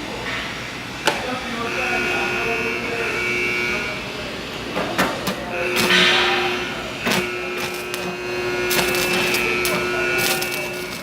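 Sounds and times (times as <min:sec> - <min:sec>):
steady whine: 0:05.3 - 0:11.0
loud hissing burst: 0:05.8 - 0:06.4, 0:07.1 - 0:11.0.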